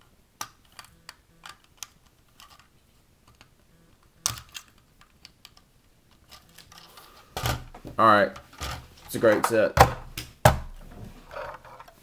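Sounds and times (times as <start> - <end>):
plastic bricks clicking: 0.4 - 3.6, 4.2 - 7.7.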